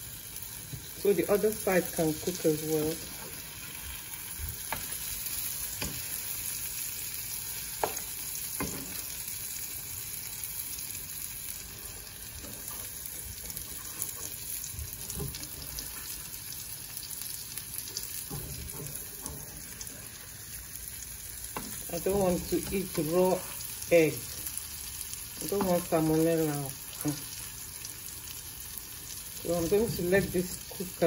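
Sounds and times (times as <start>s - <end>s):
omelette sizzling in a frying pan: 0.0s - 31.0s
spatula scraping and tapping pan: 4.6s - 5.0s, 7.8s - 9.1s, 12.4s - 16.3s, 17.9s - 19.9s, 21.5s - 21.9s.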